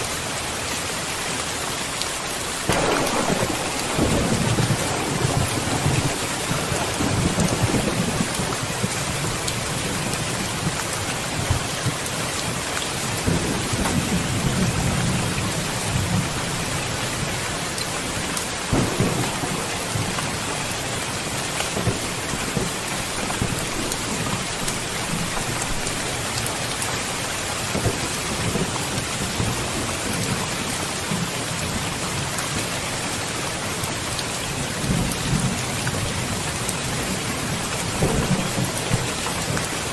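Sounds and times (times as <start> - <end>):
heavy rain: 0.0 - 39.9
sharp thunderclap: 2.7 - 10.8, 18.7 - 26.0, 37.0 - 39.3
thunder rumbling: 2.7 - 32.3, 34.6 - 39.9.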